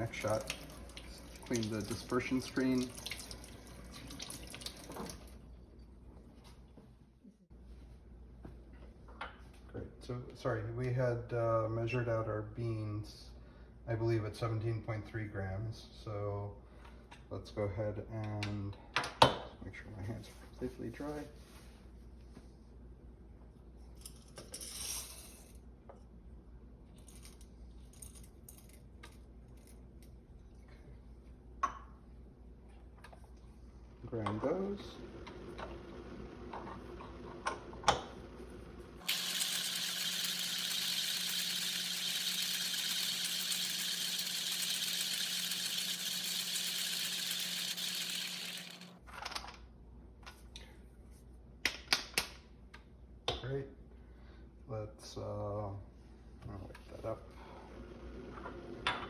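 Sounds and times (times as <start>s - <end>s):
coffee grinder whirring: 0.0s - 4.2s, 38.8s - 49.0s.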